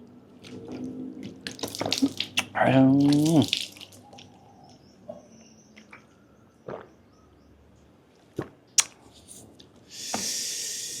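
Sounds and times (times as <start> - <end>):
mouth clicks and smacks: 1.5 - 4.3, 8.4 - 9.1.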